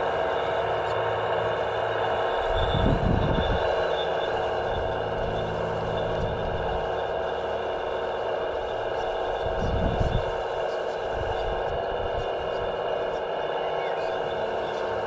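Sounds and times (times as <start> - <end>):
electric motors and hydraulic pumps whining: 0.0 - 15.0.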